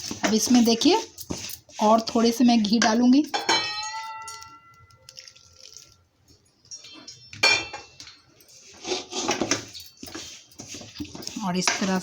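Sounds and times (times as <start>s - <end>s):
metal spoon scraping a pan: 0.0s - 5.5s, 6.8s - 12.0s.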